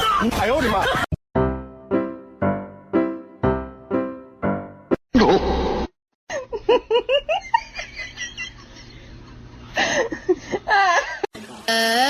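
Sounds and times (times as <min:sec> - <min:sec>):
person laughing: 0:05.2 - 0:05.6.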